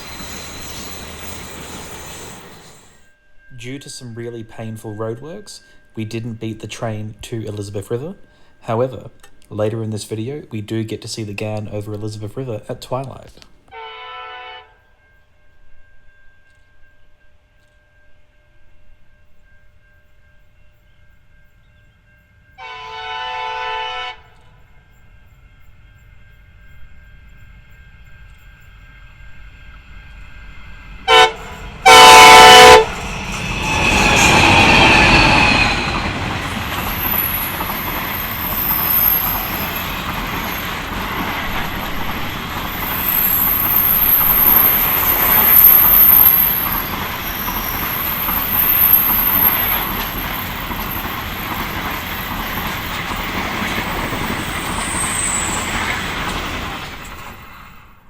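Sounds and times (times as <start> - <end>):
high wheel squeal: 0.0 - 3.0, 28.7 - 56.1
train wheels rumbling on rail: 0.0 - 13.8, 15.4 - 58.0
train horn blast: 13.7 - 14.9, 22.6 - 24.5, 31.0 - 36.3.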